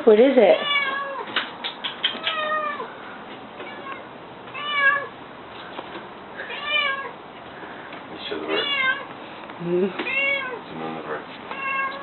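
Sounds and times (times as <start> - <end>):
cat meowing: 0.6 - 1.4, 2.1 - 2.9, 3.6 - 5.2, 6.4 - 7.2, 8.5 - 9.1, 10.0 - 10.6, 11.5 - 12.0.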